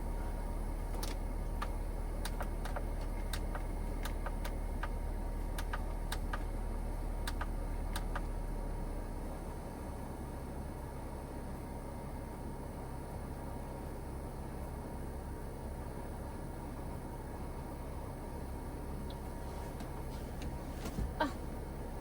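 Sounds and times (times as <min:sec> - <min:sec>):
air conditioner humming: 0:00.0 - 0:10.0, 0:17.4 - 0:22.0
light ticks: 0:07.2 - 0:08.3.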